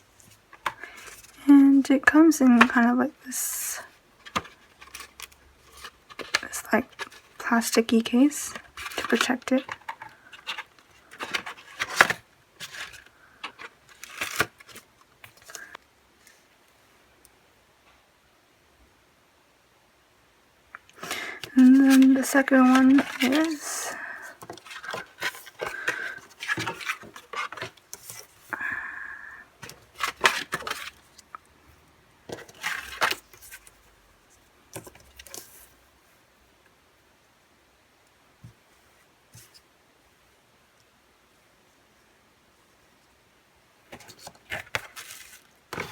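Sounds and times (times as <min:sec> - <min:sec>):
plastic case clicking and rustling: 0:04.2 - 0:07.4, 0:08.5 - 0:15.6, 0:21.0 - 0:28.4, 0:29.6 - 0:31.1, 0:32.3 - 0:33.8, 0:43.9 - 0:45.9.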